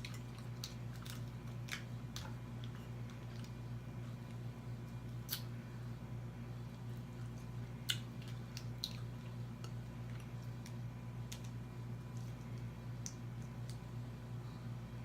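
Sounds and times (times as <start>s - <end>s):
steady low hum: 0.0s - 15.0s
wet mouth clicks and smacks: 5.2s - 5.5s, 7.8s - 13.8s.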